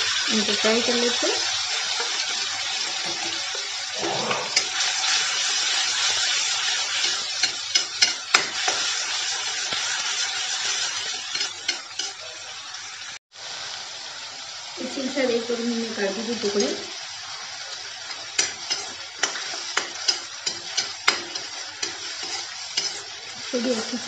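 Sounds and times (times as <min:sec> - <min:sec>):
paste sizzling in hot ghee: 0:00.0 - 0:24.0
steel spatula scraping pan: 0:10.6 - 0:12.3, 0:18.1 - 0:23.9.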